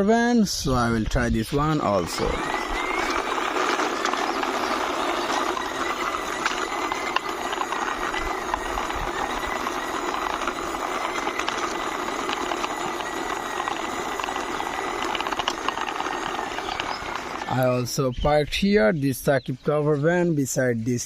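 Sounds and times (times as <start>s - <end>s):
toy van wheels rattling: 1.4s - 18.0s.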